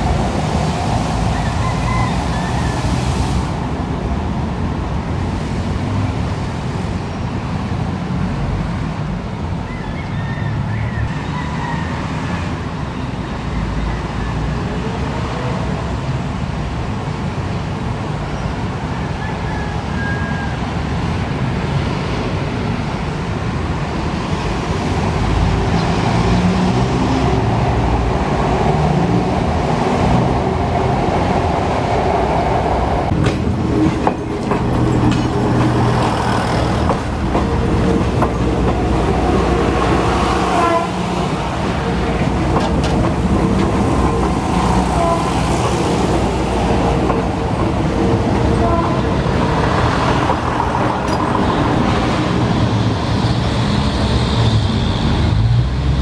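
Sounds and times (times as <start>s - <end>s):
diesel train passing: 0.0s - 56.0s
wheels clacking over rail joints: 33.0s - 52.8s.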